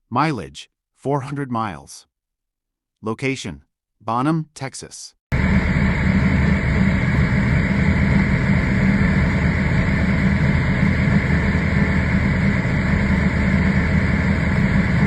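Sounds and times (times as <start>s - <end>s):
car engine idling: 5.3s - 15.0s.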